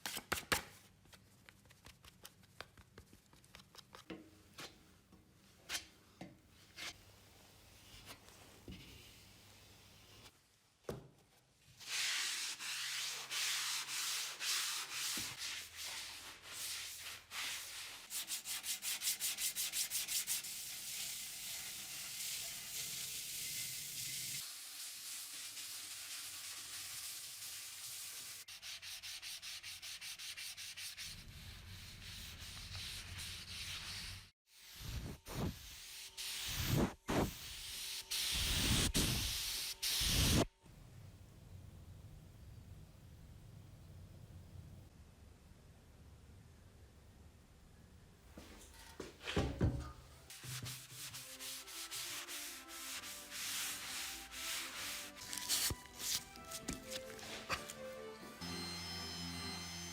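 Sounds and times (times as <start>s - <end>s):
sanding hiss: 32.0s - 40.5s, 50.3s - 55.8s
quick sanding strokes: 50.3s - 57.7s.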